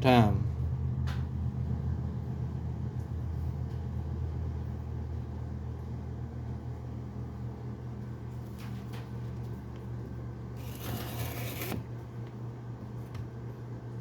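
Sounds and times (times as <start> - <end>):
low humming drone: 0.0 - 7.2.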